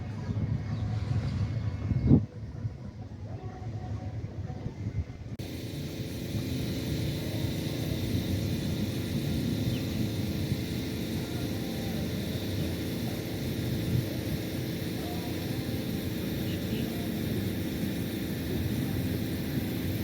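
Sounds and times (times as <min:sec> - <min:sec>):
motorboat engine droning: 0:05.4 - 0:20.0.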